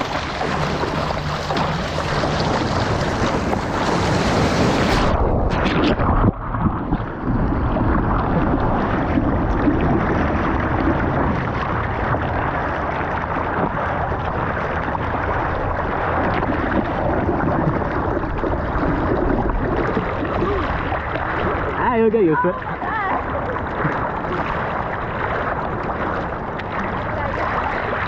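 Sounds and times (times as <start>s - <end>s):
surf rushing and sloshing: 0.0s - 28.0s
wind noise: 0.0s - 28.0s.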